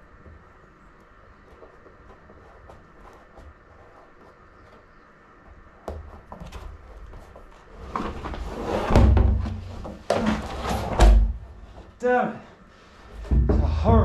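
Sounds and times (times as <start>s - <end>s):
knocks and thumps inside plastic barrel: 13.2s - 14.0s.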